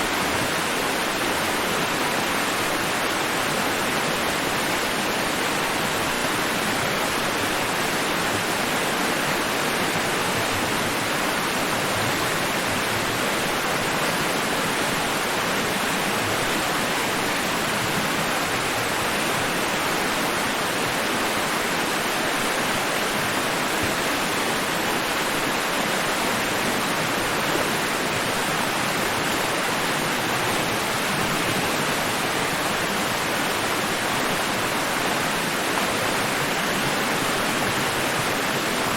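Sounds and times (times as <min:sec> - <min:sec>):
steady white noise hiss: 0:00.0 - 0:38.9.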